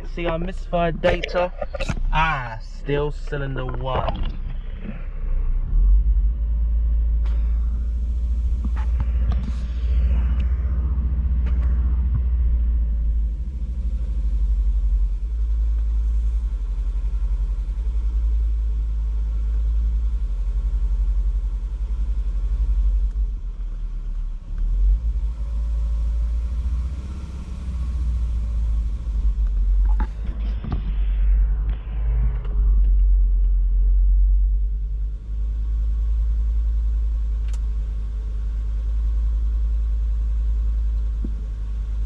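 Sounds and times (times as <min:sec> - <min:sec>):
misfiring car engine idling: 0:00.0 - 0:31.8.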